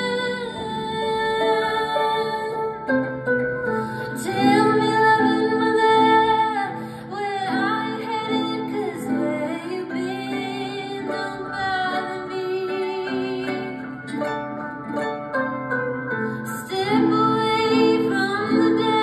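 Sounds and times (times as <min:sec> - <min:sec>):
woman singing: 0:00.0 - 0:14.4, 0:16.3 - 0:19.0
plucked harp: 0:00.0 - 0:19.0.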